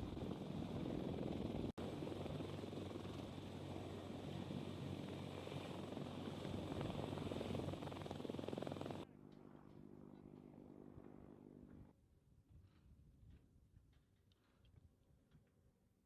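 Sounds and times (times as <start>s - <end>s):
helicopter rotor and engine: 0.0s - 11.9s.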